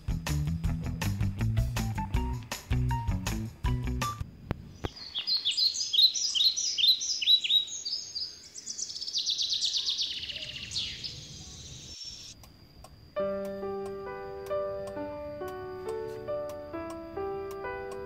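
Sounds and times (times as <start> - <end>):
background music: 0.0 - 4.2, 13.2 - 18.0
songbird chirping and trilling: 4.6 - 12.5.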